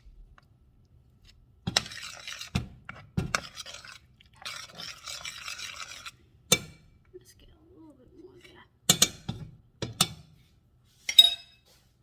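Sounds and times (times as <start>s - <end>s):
stirring thick sauce in a pot: 0.0s - 11.1s.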